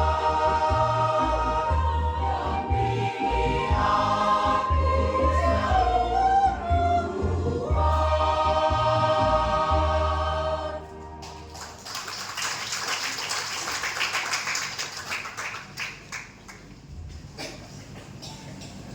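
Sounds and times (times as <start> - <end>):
choir singing a hymn: 0.0 - 11.4
steady low bass: 0.0 - 11.7.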